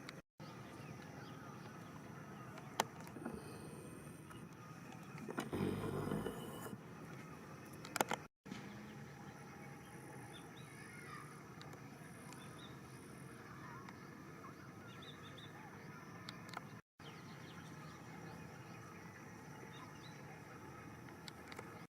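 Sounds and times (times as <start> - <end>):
faint outdoor background noise: 0.0 - 21.9
small birds chirping: 0.0 - 21.9.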